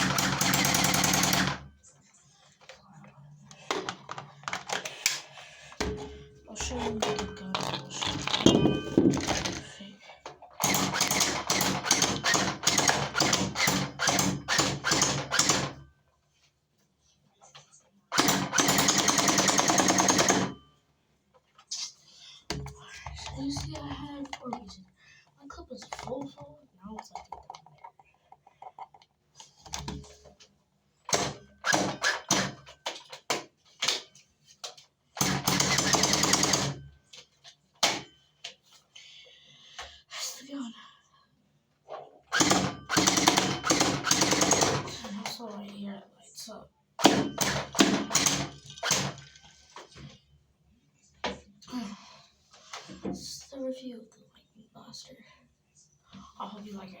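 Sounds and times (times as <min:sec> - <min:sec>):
toy blaster firing bursts: 0:42.3 - 0:44.9.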